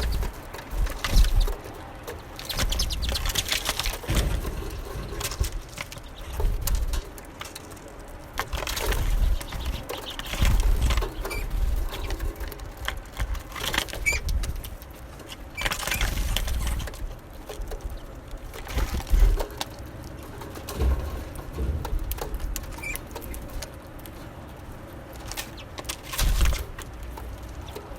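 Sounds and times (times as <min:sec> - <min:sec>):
birds pecking: 0:00.0 - 0:27.9
wings fluttering: 0:00.0 - 0:27.9
low rumbling: 0:16.1 - 0:25.2.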